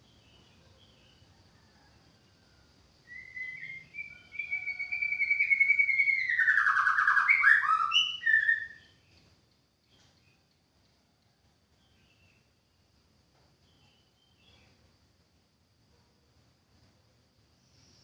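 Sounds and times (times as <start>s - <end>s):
bird singing whistled notes: 3.0s - 10.4s.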